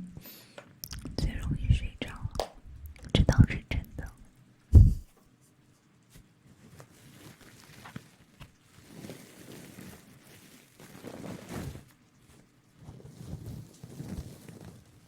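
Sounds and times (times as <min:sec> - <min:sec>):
soft rustling and brushing: 0:04.8 - 0:15.0.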